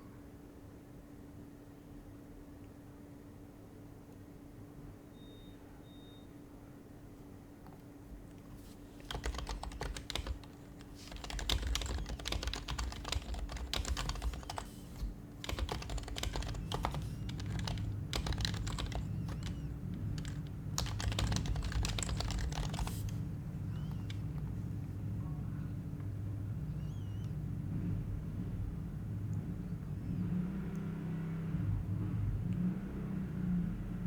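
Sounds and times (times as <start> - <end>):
keyboard keys clacking: 8.6 - 24.6.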